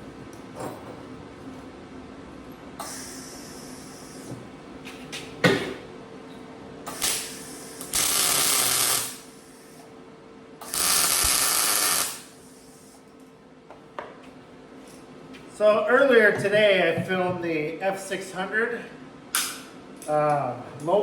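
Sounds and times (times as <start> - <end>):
welding arc bursts: 6.9 - 9.6, 10.6 - 12.9.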